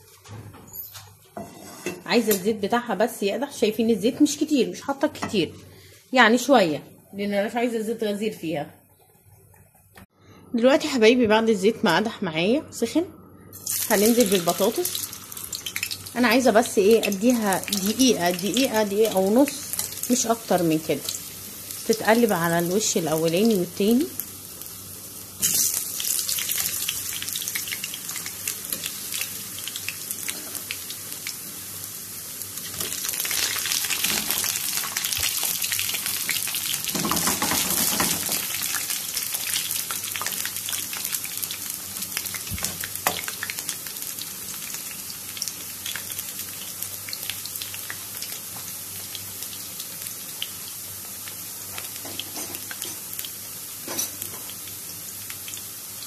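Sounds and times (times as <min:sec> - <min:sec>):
potatoes sizzling in oil: 0:13.6 - 0:56.0.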